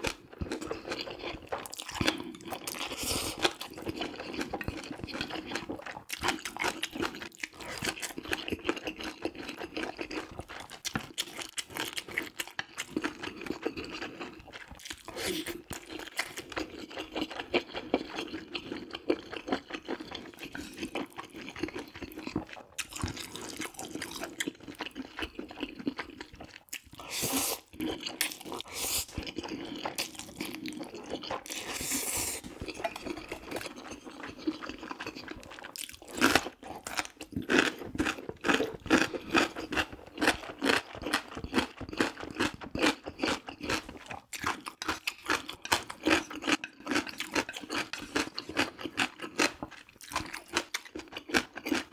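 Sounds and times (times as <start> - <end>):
noodle slurps: 27.0 - 27.9, 28.5 - 29.4, 31.4 - 33.4.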